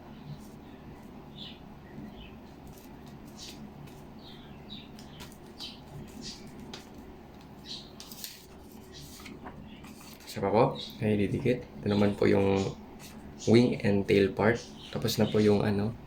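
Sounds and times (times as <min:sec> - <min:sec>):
small birds chirping: 0:00.0 - 0:16.0
paper rustling and clicking: 0:04.9 - 0:10.3.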